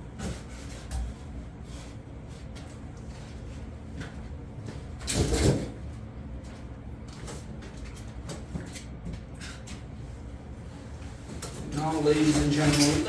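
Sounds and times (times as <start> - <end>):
heavy tool parts scraping: 12.0 - 13.0.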